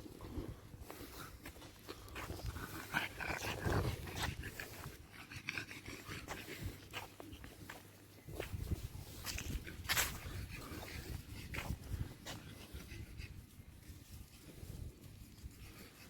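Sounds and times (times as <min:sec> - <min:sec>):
dog sounds: 0:00.2 - 0:07.8
small clicks and scuffs: 0:06.0 - 0:16.0.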